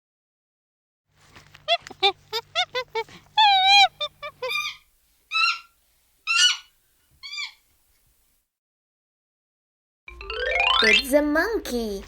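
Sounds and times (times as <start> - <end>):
monkey calling: 1.6 - 7.7.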